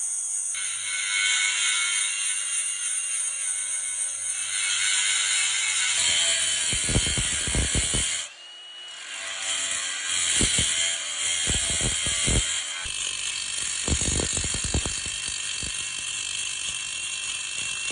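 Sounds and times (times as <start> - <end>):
angle grinder on metal: 0.0 - 17.9.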